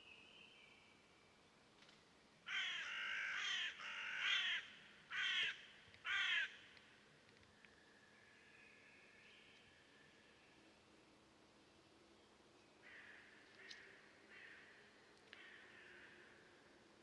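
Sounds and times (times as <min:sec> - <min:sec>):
crow cawing: 0:02.5 - 0:06.6, 0:12.8 - 0:16.3.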